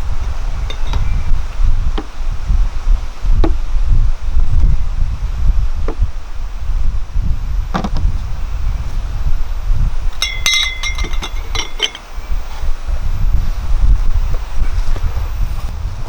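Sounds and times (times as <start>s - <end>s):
wind rumble on microphone: 0.0s - 16.0s
cooking utensils clinking: 10.2s - 12.0s.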